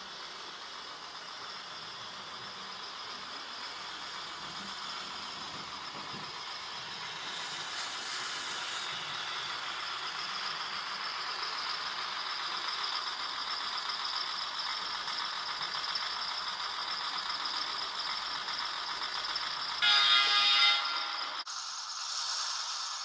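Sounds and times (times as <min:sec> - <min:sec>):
diesel engine sound from small speaker: 0:00.0 - 0:21.4
loud horn blast: 0:19.8 - 0:21.4.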